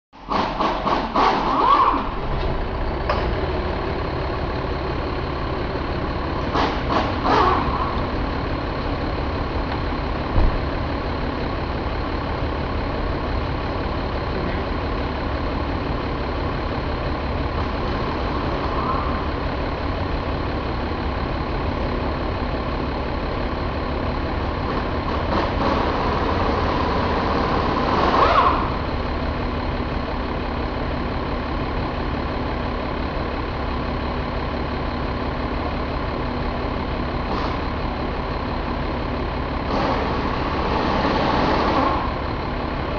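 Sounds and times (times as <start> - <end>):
diesel engine idling: 0.2 - 42.9
short thump: 10.3 - 10.6.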